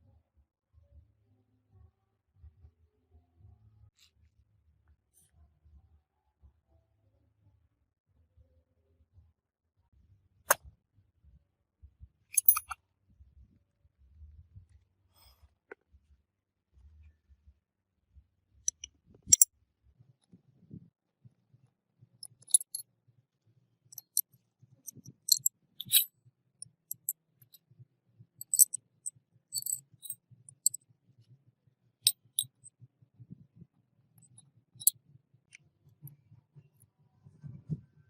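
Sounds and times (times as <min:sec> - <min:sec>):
metal parts and tools clinking: 0:12.3 - 0:12.8, 0:18.7 - 0:19.5, 0:22.2 - 0:22.8, 0:24.0 - 0:24.3, 0:24.9 - 0:26.1, 0:26.9 - 0:27.1, 0:28.4 - 0:28.8, 0:29.6 - 0:30.8.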